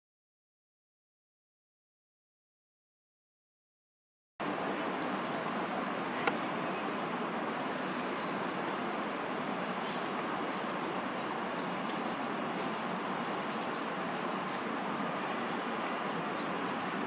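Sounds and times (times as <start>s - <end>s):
faint high bird chirps: 4.4s - 5.0s, 11.0s - 12.9s
city traffic hum: 4.4s - 17.0s.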